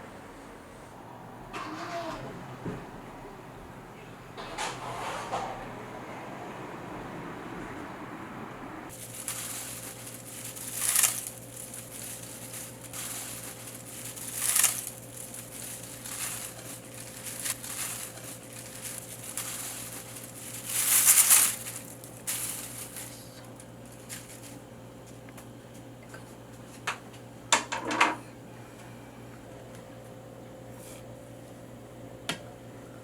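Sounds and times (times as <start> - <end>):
steady low hum: 8.5 - 27.5
dried greens rustling: 8.9 - 25.3.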